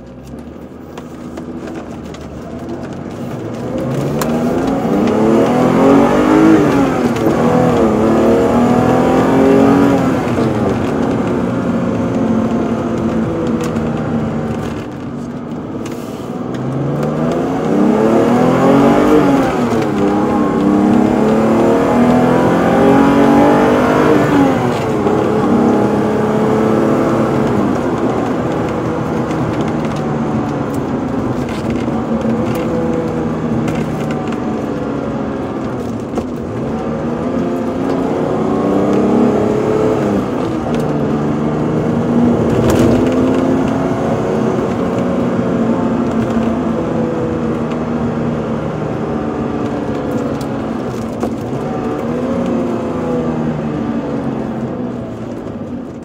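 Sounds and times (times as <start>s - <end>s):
car engine accelerating: 0.0s - 56.0s
road noise: 0.0s - 56.0s.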